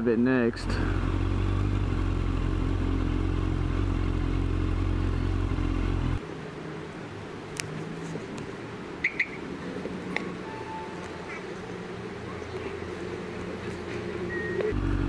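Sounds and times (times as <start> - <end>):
motorcycle engine running: 0.1 - 6.2, 14.5 - 15.0.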